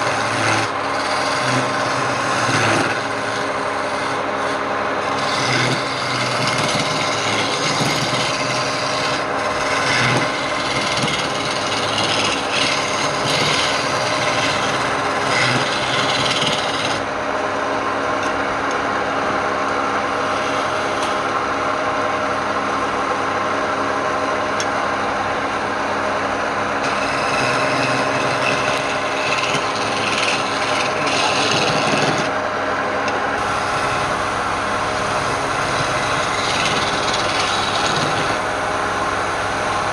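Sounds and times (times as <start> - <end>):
tool rasping against spinning wood: 0.0 - 17.1, 20.2 - 21.2, 26.8 - 32.4, 33.4 - 39.9
wood lathe motor hum: 0.0 - 17.3, 20.1 - 21.4, 25.3 - 32.4, 33.3 - 39.9.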